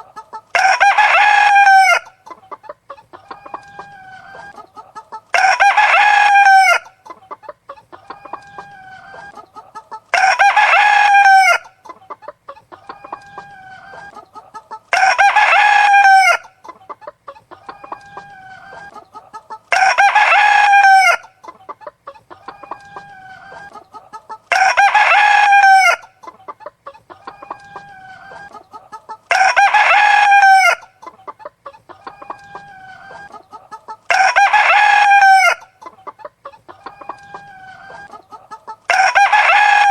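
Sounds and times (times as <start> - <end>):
chicken clucking: 0.0 - 39.9
rooster crowing: 0.5 - 2.1, 5.3 - 6.9, 10.1 - 11.7, 14.9 - 16.5, 19.7 - 21.3, 24.5 - 26.1, 29.3 - 30.9, 34.1 - 35.7, 36.8 - 39.9.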